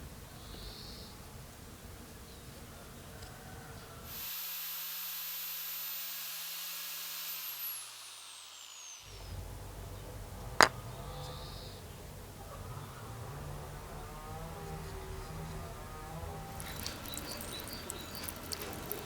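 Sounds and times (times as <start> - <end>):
power tool running and spinning down: 4.0 - 9.6, 12.8 - 19.0.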